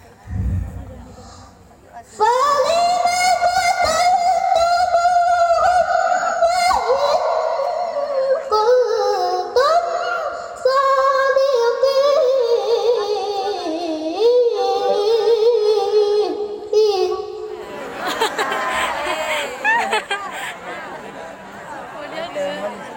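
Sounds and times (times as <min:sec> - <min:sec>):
high voice melodic recitation: 0:02.1 - 0:17.5.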